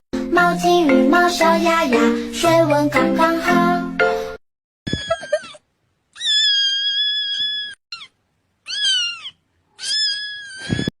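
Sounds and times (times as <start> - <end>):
cat meowing: 6.2 - 10.9.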